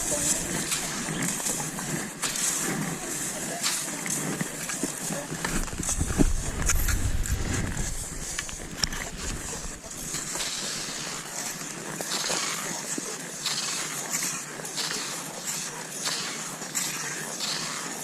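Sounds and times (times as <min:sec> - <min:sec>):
skis swishing over snow: 0:00.0 - 0:18.0.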